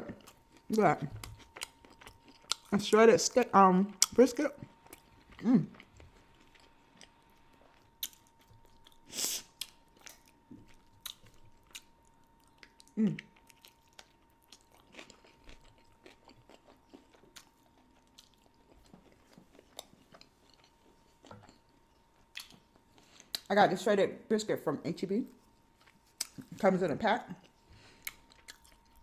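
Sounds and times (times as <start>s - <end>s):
person chewing and smacking: 0.0s - 2.7s, 3.9s - 23.5s, 25.4s - 26.6s, 27.4s - 29.0s.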